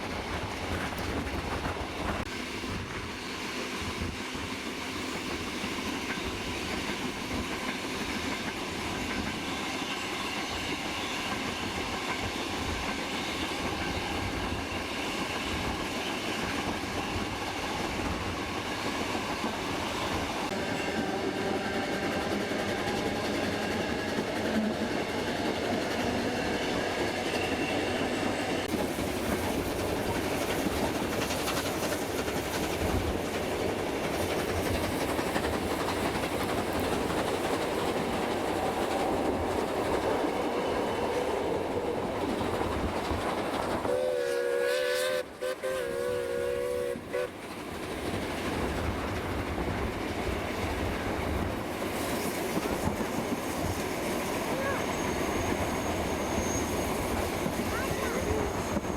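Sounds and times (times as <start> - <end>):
train carriages clattering on rails: 0.0 - 43.9, 47.3 - 58.9
steam whistle: 20.5 - 23.9, 43.8 - 47.4.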